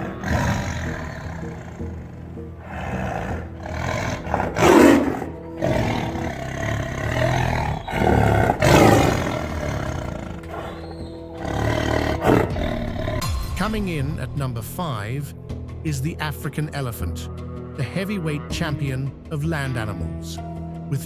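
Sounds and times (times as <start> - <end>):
tiger roaring and growling: 0.0 - 13.3
background music: 0.0 - 21.0.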